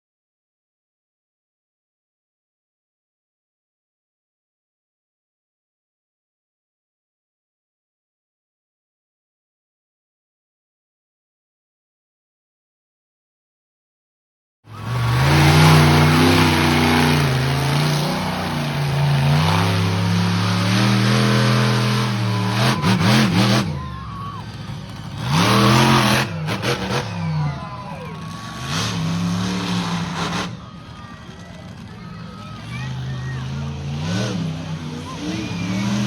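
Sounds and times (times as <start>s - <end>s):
truck engine revving: 14.7s - 36.0s.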